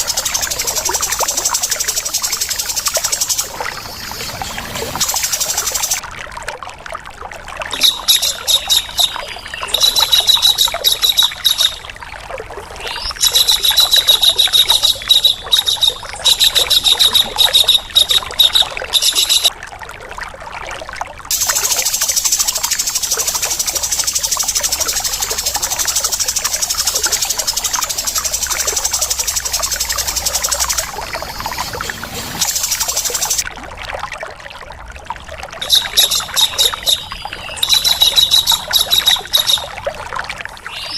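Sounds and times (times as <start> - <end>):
fast high bird rattle: 0.0 - 3.6, 4.9 - 6.0, 21.3 - 33.4
harsh rapid bird calls: 0.0 - 6.0, 21.3 - 33.4, 35.6 - 39.7
steady hiss: 0.0 - 6.0, 21.3 - 33.4.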